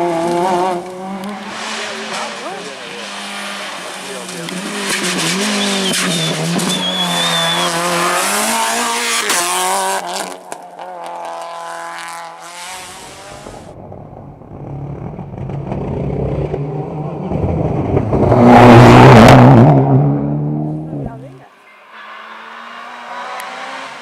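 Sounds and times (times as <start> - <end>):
rally car engine revving: 0.0 - 24.0
tyre squeal: 4.9 - 8.2.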